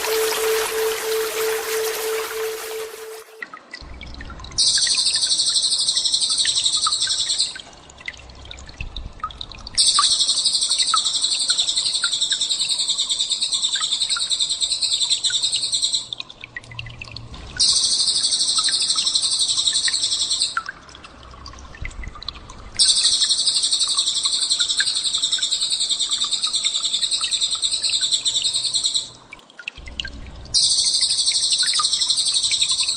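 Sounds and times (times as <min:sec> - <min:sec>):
bird chirps: 0:00.0 - 0:03.4
songbird high rapid trills: 0:00.0 - 0:03.4.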